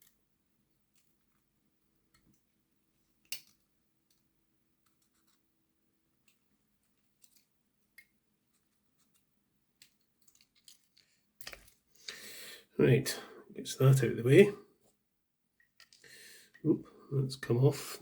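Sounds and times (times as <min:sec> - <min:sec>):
plastic parts clicking and scratching: 0:03.2 - 0:05.5, 0:06.2 - 0:11.9, 0:15.6 - 0:16.6.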